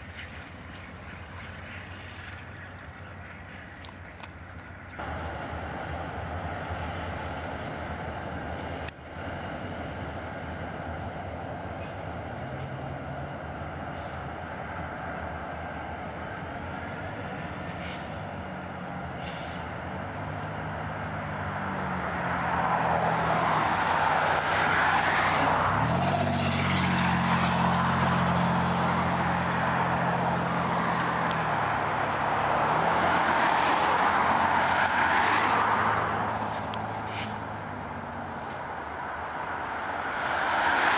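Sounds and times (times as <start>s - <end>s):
diesel locomotive engine droning: 0.0s - 40.9s
moving train noise: 0.0s - 40.9s.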